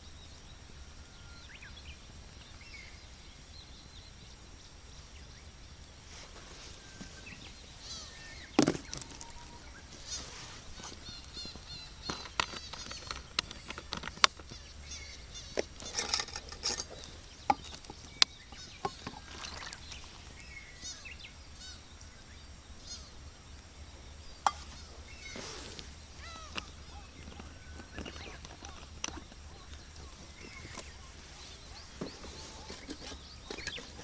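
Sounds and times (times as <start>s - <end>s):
small birds chirping: 0.0s - 34.0s
wood fire crackling: 2.0s - 20.8s
burning firewood popping: 4.4s - 20.7s, 23.5s - 34.0s.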